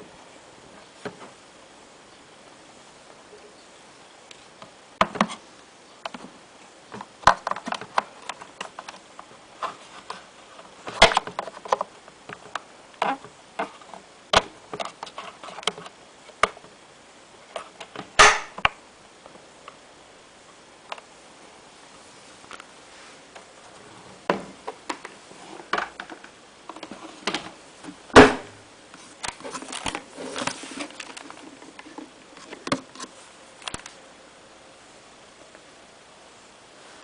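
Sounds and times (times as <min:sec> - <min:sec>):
clicks and knocks of fan parts: 0:06.0 - 0:16.7, 0:24.2 - 0:34.0.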